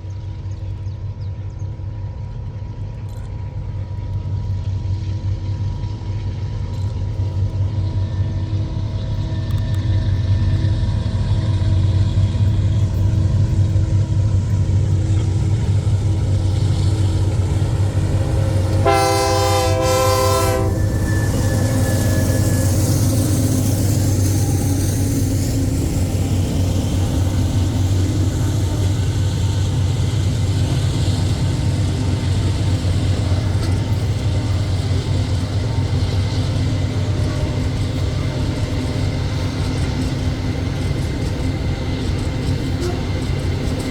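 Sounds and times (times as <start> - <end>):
freight train rumbling past: 0.0 - 43.9
train horn blast: 17.4 - 23.1, 42.6 - 43.3.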